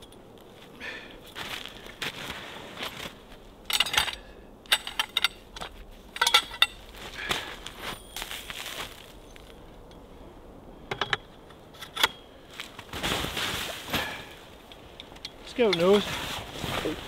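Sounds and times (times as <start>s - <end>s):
metal tent poles clinking: 2.9s - 10.0s, 10.9s - 12.4s, 14.0s - 17.0s.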